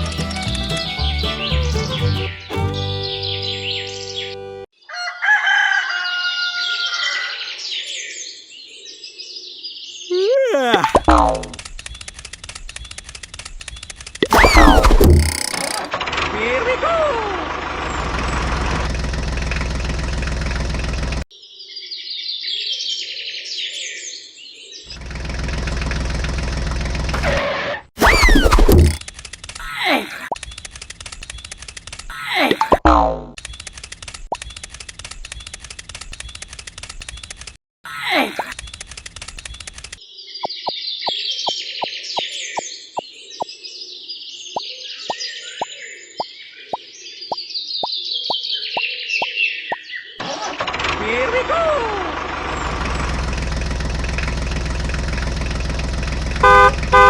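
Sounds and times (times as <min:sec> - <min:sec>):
tractor engine running: 0:00.0 - 0:04.3, 0:17.4 - 0:21.2, 0:24.9 - 0:27.3, 0:52.1 - 0:57.0
birds chirping: 0:00.0 - 0:04.7, 0:40.2 - 0:43.7, 0:44.4 - 0:50.2
fast clicking rattle: 0:11.5 - 0:14.2, 0:30.4 - 0:32.1, 0:33.4 - 0:37.6, 0:38.6 - 0:40.0.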